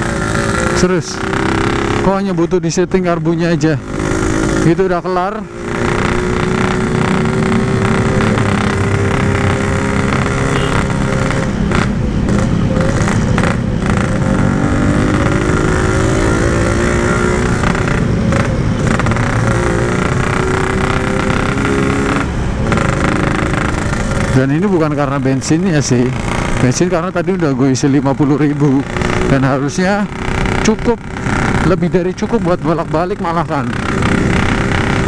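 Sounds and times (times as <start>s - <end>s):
two-stroke motorcycle engine: 0.0s - 35.0s.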